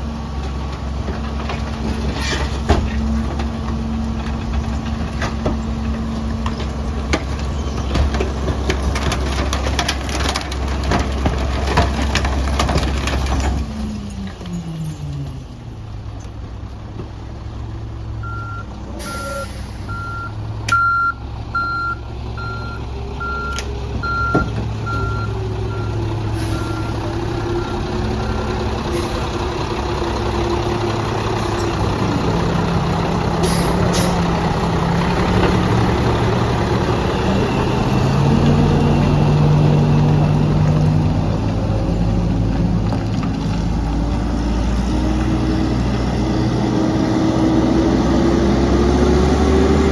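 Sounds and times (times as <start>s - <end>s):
diesel truck engine running: 0.0s - 49.9s
reverse alarm beeping: 18.2s - 27.0s.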